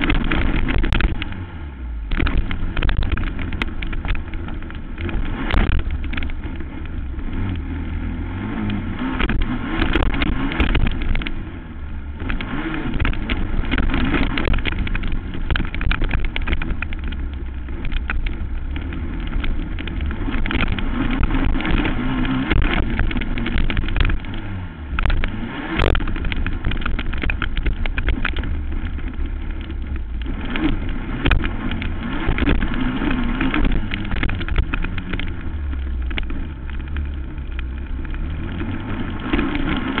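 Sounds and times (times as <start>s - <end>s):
sharp knocks and clicks: 0.0s - 1.4s, 2.1s - 7.7s, 8.6s - 40.0s
quad engine running hard: 0.0s - 40.0s.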